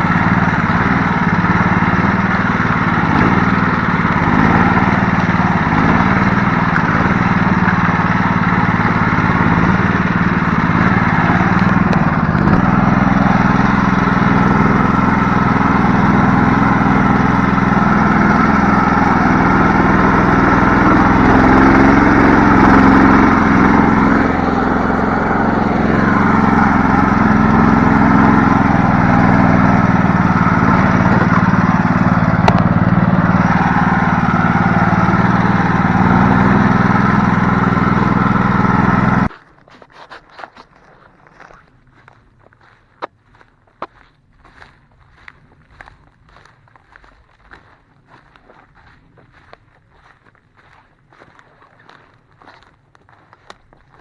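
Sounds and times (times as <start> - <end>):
small vehicle engine running: 0.0 - 54.0.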